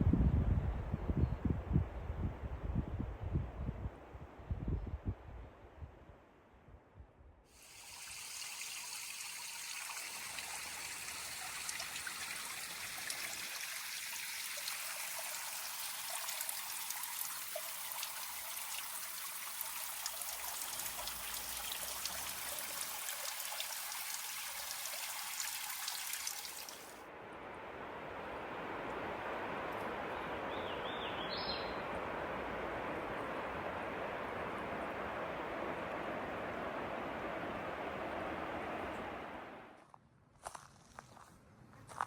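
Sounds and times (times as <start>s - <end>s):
water running over rocks: 7.6s - 27.0s.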